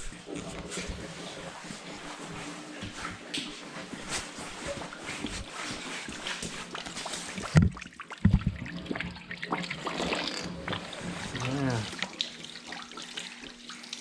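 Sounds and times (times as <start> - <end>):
water trickling from hose: 9.8 - 14.0.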